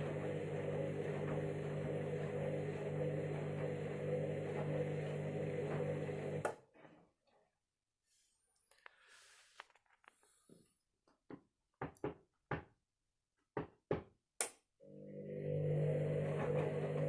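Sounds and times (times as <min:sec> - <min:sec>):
drum motor humming: 0:00.0 - 0:06.4, 0:15.1 - 0:17.0.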